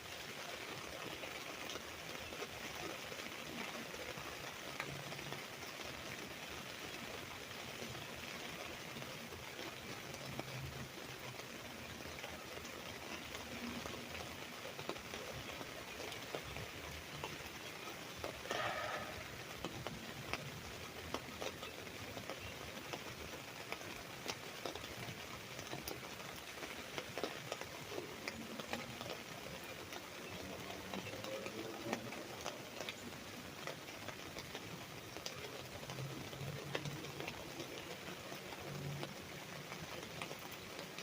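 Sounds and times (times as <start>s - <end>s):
rain pattering on an umbrella: 0.0s - 41.0s.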